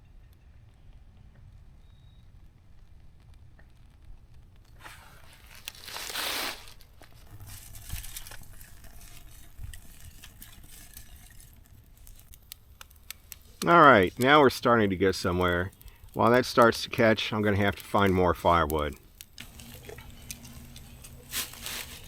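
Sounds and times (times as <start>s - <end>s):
kindling crackling and snapping: 0.9s - 22.0s
loud hiss: 4.8s - 6.8s, 19.4s - 22.0s.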